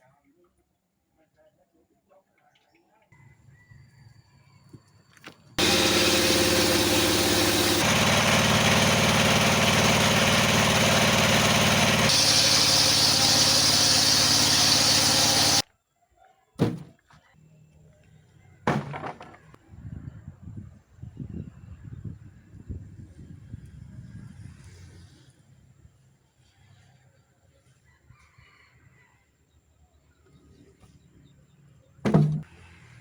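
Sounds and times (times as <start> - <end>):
circular saw cutting wood: 5.6 - 15.6.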